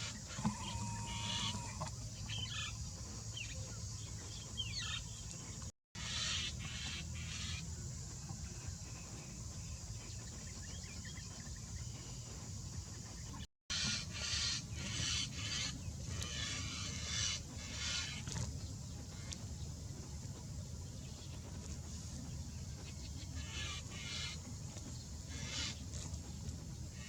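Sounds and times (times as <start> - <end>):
harsh bird calls: 0.0 - 2.8.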